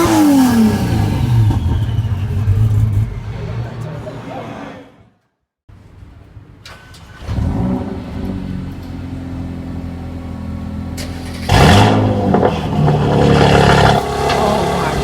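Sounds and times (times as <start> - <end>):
car engine revving and idling: 0.0 - 4.1, 7.1 - 15.0.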